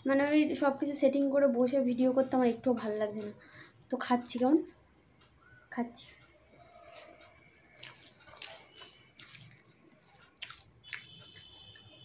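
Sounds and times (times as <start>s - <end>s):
soft clicks and squishes: 1.9s - 12.0s
wet chewing and lip-smacking: 6.2s - 12.0s.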